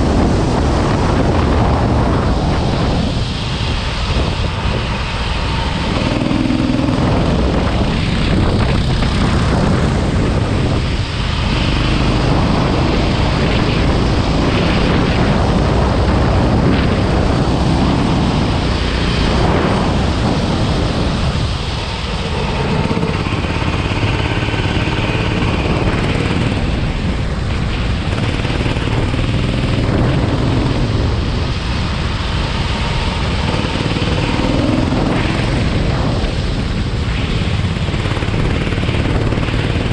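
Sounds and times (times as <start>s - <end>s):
go-kart engine revving: 4.3s - 39.9s.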